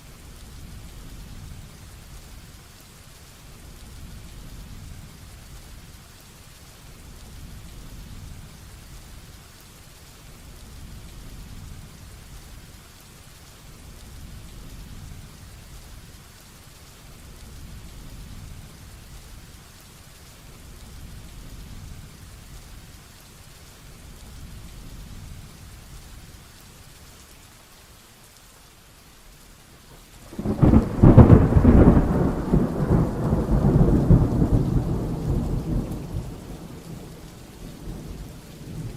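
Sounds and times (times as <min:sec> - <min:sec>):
heavy rain: 0:00.0 - 0:38.9
thunder rumbling: 0:30.2 - 0:38.9
loud thunderclap: 0:30.3 - 0:37.1.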